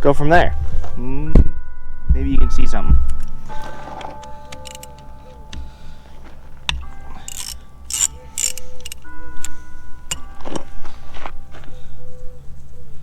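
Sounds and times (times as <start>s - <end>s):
metal tools knocking: 3.6s - 5.8s, 6.6s - 10.6s
ratchet wrench clicking: 6.7s - 9.1s.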